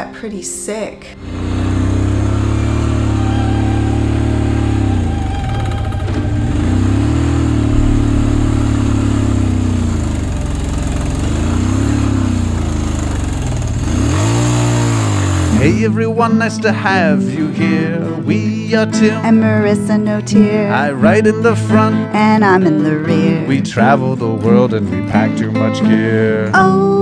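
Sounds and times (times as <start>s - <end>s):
motorcycle engine revving: 1.2s - 15.7s.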